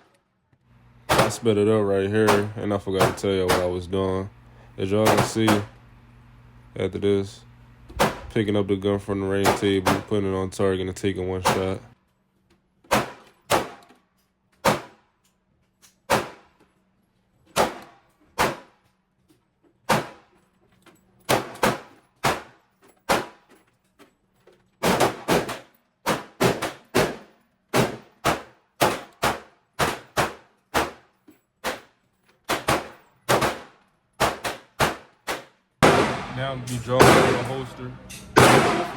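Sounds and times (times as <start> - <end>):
pistol shots with echo: 32.5 - 37.8, 38.4 - 38.9.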